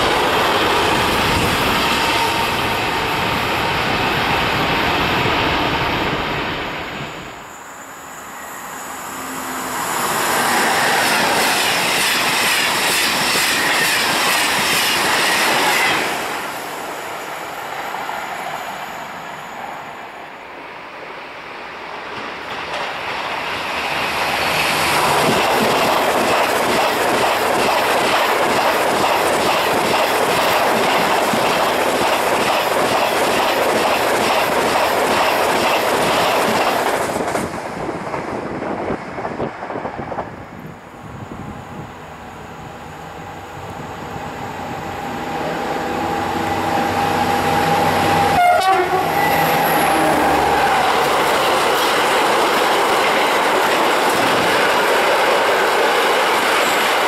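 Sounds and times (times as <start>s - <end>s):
train roaring past: 0.0s - 57.0s
rhythmic rail clicking: 8.8s - 16.8s, 22.0s - 40.7s, 44.8s - 57.0s.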